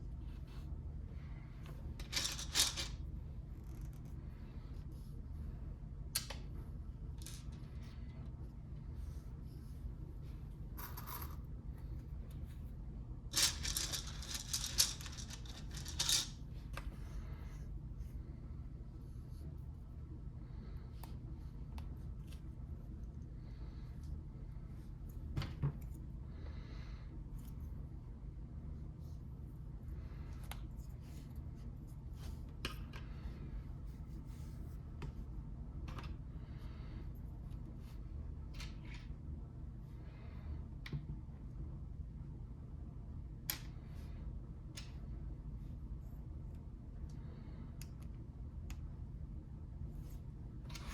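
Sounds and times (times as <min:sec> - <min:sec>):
low steady hum: 0:00.0 - 0:50.9
plastic pieces clicking and rattling: 0:02.0 - 0:03.0, 0:13.3 - 0:16.4.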